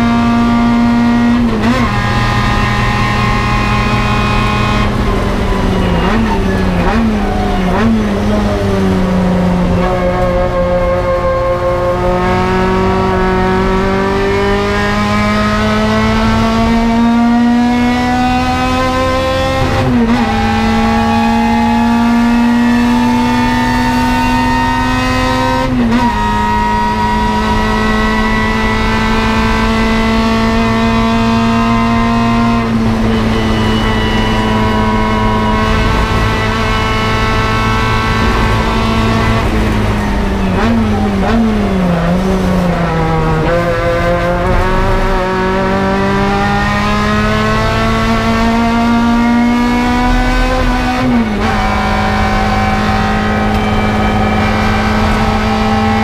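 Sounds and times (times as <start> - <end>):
race car engine at full throttle: 0.0 - 56.0.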